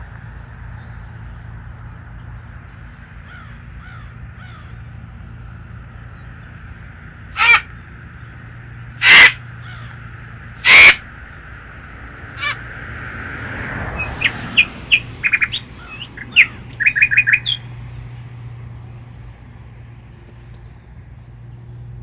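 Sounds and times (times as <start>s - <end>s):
crow cawing: 3.2s - 4.9s, 7.4s - 7.8s, 9.0s - 11.2s, 12.2s - 12.8s, 14.0s - 17.6s
high bird chirps: 13.9s - 17.8s.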